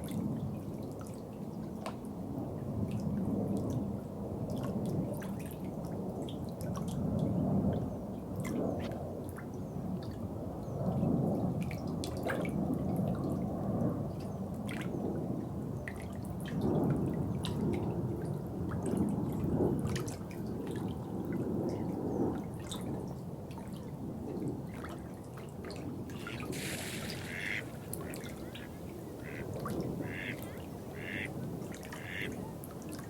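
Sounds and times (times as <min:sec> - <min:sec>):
water trickling and dripping: 0:26.1 - 0:33.0
brief hiss: 0:26.2 - 0:28.6.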